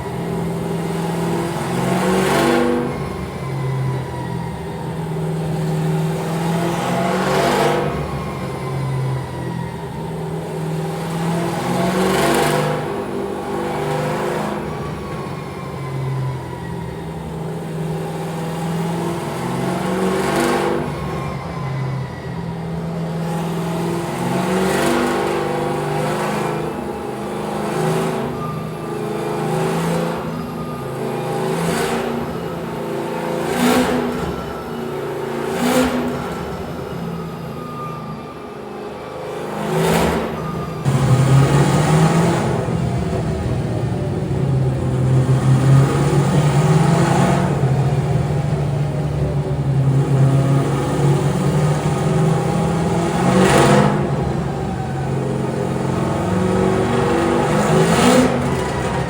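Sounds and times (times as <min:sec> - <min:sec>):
car engine revving: 0:22.4 - 0:38.0, 0:39.3 - 0:59.0.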